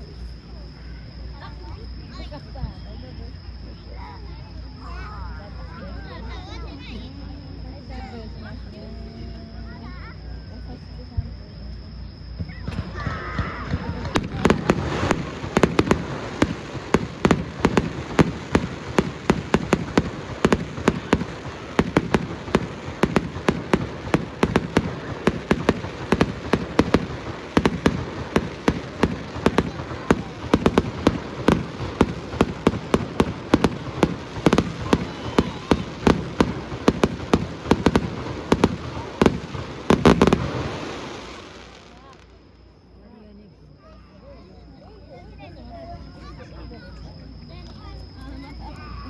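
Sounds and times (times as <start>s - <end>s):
fireworks shells bursting: 12.4s - 42.0s.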